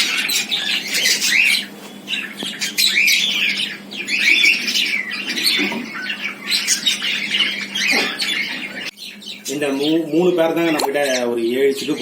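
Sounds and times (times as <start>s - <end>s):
cockatiels calling: 0.0s - 12.0s.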